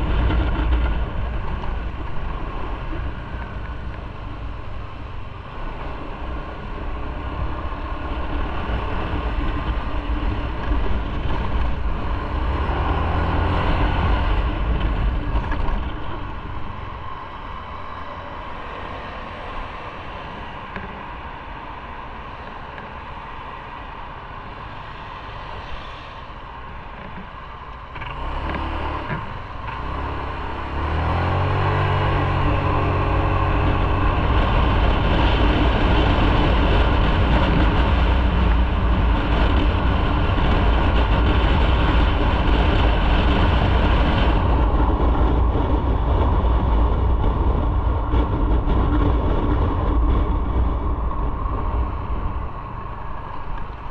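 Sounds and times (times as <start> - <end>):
road and wind noise: 0.0 - 53.9.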